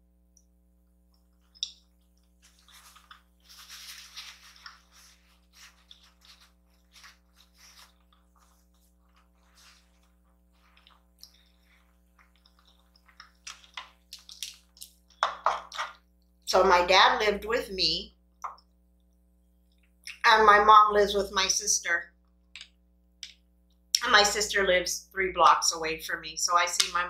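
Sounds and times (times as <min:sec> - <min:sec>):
chewing noodles: 0:01.2 - 0:15.2.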